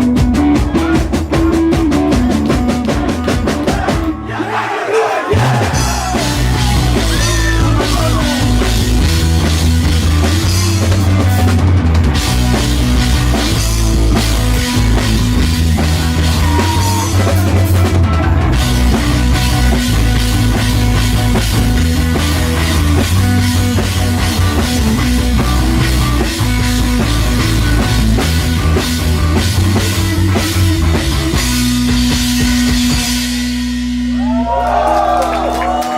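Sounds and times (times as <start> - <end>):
live rock band playing: 0.0 - 4.3, 5.3 - 35.9.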